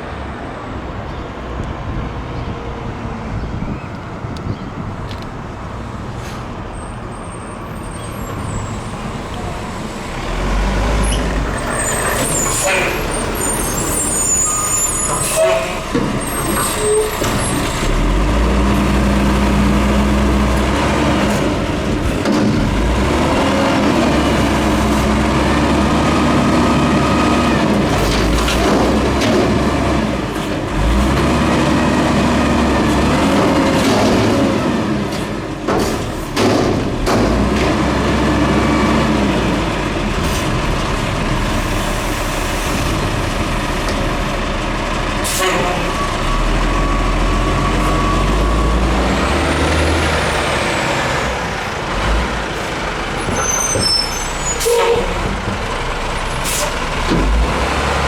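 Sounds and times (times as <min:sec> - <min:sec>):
diesel truck engine revving: 0:09.1 - 0:58.0.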